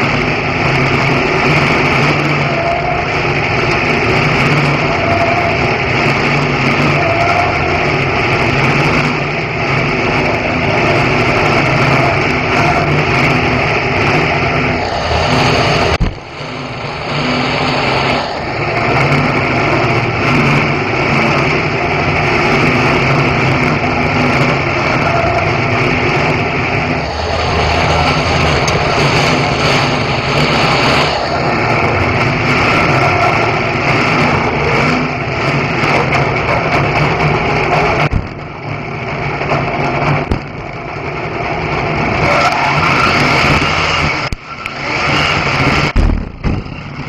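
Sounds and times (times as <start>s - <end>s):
race car engine running: 0.0s - 47.0s.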